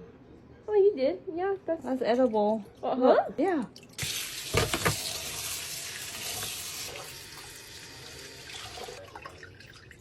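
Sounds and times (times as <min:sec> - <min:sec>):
tap running into sink: 0:04.0 - 0:05.5.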